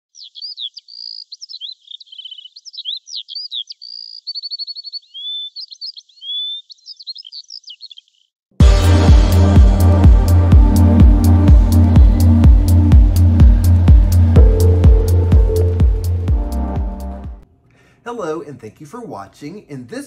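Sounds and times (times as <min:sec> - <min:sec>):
songbird singing: 0:00.1 - 0:08.4
electronic music with heavy beat: 0:08.6 - 0:17.4.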